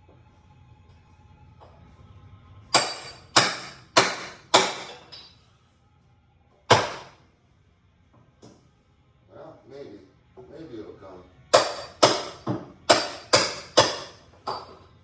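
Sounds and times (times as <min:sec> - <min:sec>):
hammer striking metal: 0:02.7 - 0:05.4, 0:06.7 - 0:07.2, 0:11.5 - 0:14.8.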